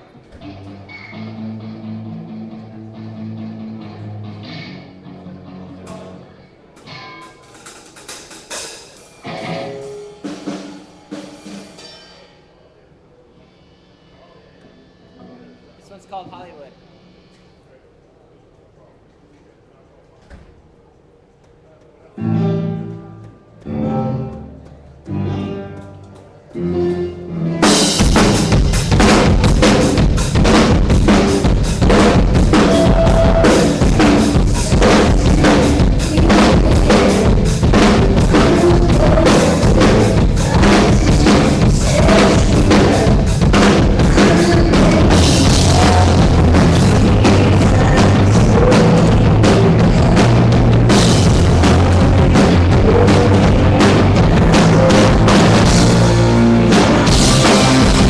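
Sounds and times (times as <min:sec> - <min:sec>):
live rock band playing: 0:00.4 - 0:12.0, 0:22.2 - 0:58.0
drum kit beat: 0:07.4 - 0:12.0, 0:27.6 - 0:58.0.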